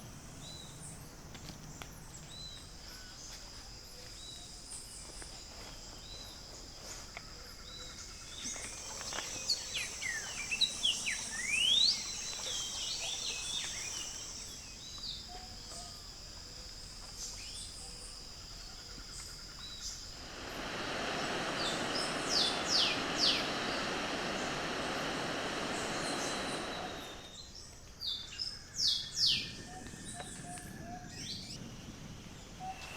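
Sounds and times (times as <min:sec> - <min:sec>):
steady high-pitched hum: 0:07.4 - 0:27.5
wild birds calling: 0:07.5 - 0:27.3
steady rushing noise: 0:20.1 - 0:27.3.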